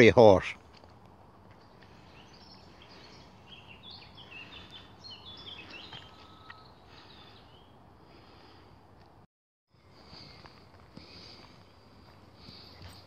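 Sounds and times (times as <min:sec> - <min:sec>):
songbirds chirping and trilling: 0:00.0 - 0:09.2
steady outdoor hiss: 0:00.0 - 0:13.0.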